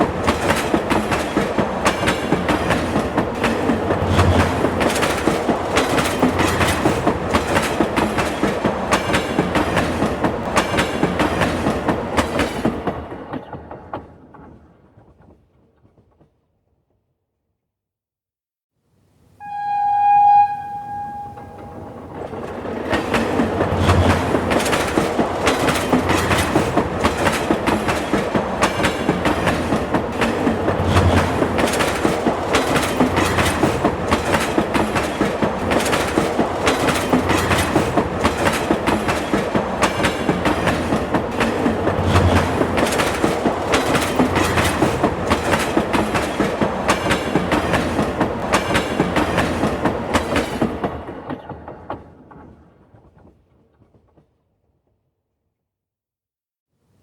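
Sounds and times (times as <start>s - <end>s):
train wheels clattering: 0.0s - 16.2s, 20.4s - 54.4s.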